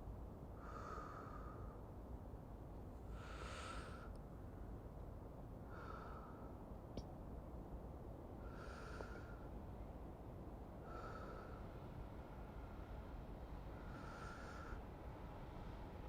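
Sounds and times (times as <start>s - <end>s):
faint low rumble: 0.0s - 16.0s
soft breathing: 0.6s - 1.9s, 3.0s - 4.7s, 5.6s - 6.7s, 8.4s - 9.6s, 10.8s - 11.9s, 13.6s - 15.0s.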